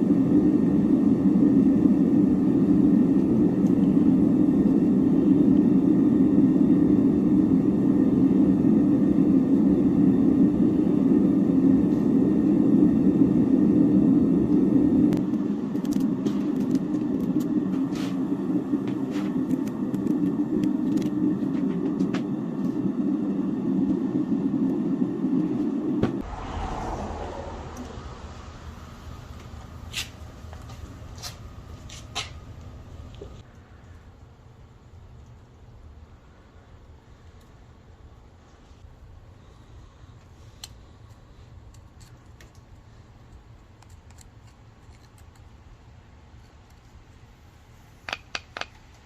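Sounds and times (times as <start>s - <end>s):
gas torch flame rushing: 0.0s - 32.4s.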